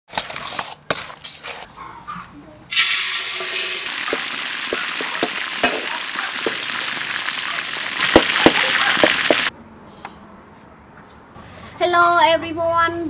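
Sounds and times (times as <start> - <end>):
chicken sizzling in hot oil: 2.7 - 9.5.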